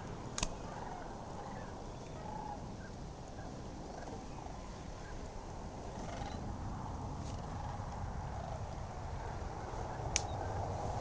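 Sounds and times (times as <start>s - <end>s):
ducks and geese calling: 0.0s - 5.3s
steady background hiss: 0.0s - 11.0s.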